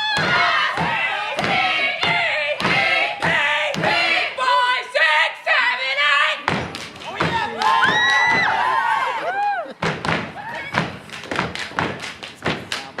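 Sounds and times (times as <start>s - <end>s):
dancers stomping: 6.5s - 13.0s
people clapping: 6.5s - 13.0s
many voices shouting: 7.3s - 9.7s.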